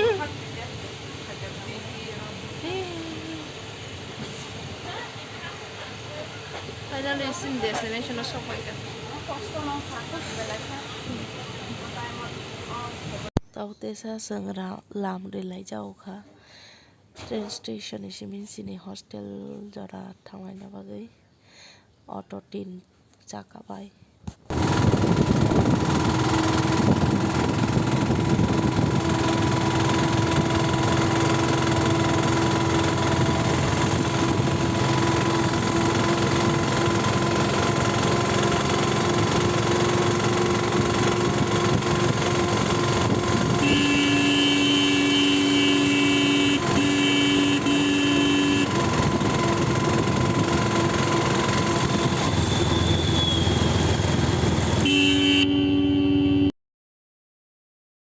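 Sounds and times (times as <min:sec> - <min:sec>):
vehicle engines and road noise: 0:00.0 - 0:13.4, 0:24.3 - 0:56.5
vehicle horn: 0:42.0 - 0:49.7, 0:54.8 - 0:56.5.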